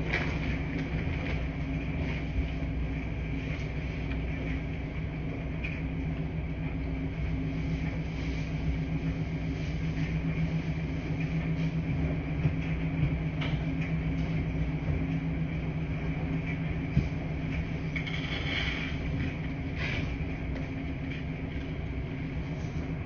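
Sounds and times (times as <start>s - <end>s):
washing machines humming: 0.0s - 23.0s.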